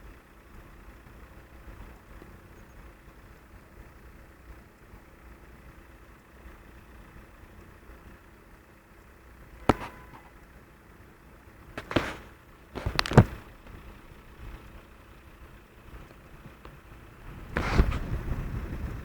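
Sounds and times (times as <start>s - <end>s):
sharp knocks: 9.6s - 10.4s.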